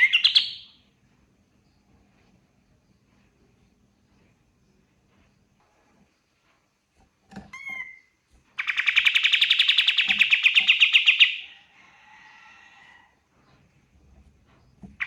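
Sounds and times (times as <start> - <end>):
songbird call notes: 0.0 - 0.8, 7.6 - 11.5
songbird fast rattling trill: 8.6 - 11.4.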